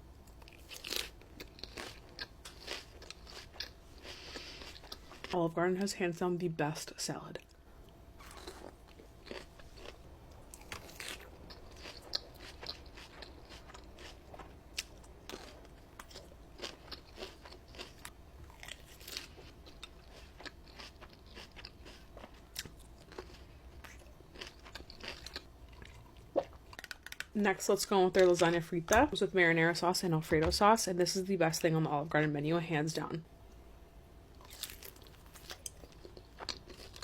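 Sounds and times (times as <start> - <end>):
salad being bitten and chewed: 0.3 - 5.3, 8.2 - 27.0.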